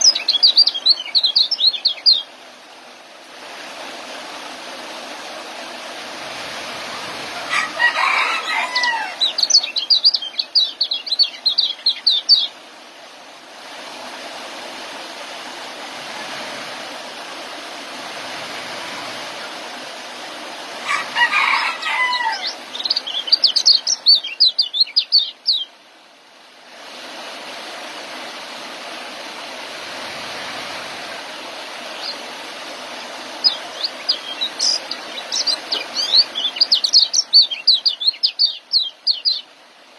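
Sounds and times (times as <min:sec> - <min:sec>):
bird twittering song: 0:00.0 - 0:02.3, 0:07.7 - 0:12.6, 0:22.2 - 0:25.7, 0:32.0 - 0:32.2, 0:33.4 - 0:39.5
steady hiss: 0:00.0 - 0:20.9, 0:21.7 - 0:39.9.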